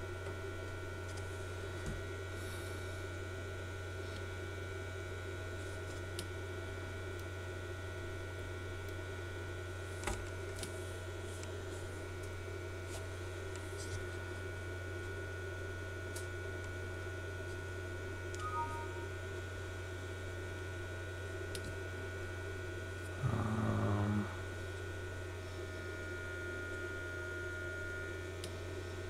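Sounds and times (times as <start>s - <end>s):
cooling fan humming: 0.0s - 29.0s
faint short tones: 18.4s - 19.1s.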